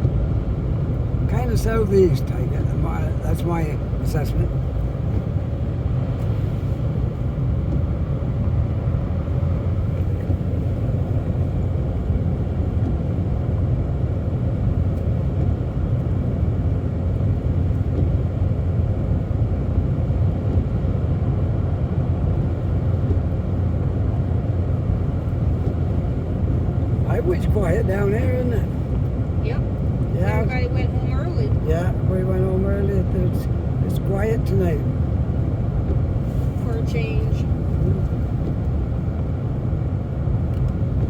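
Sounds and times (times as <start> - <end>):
car cabin road noise: 0.0 - 41.0.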